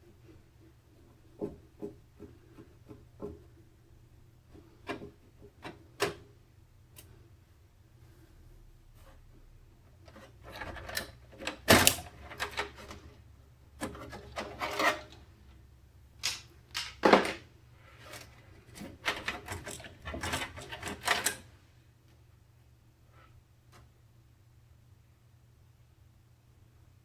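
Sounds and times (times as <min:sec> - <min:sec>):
hands handling components and packaging: 0:16.2 - 0:21.4.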